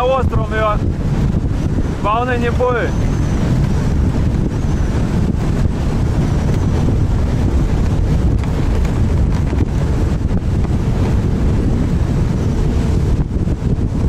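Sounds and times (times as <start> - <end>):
outboard motor running: 0.0 - 14.0
waves slapping hull: 0.0 - 14.0
wind buffeting microphone: 0.0 - 14.0.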